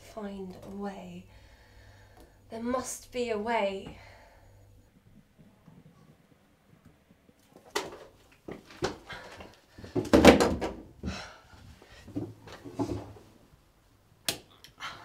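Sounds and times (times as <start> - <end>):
knocks and bumps on wooden desk: 9.9 - 10.8.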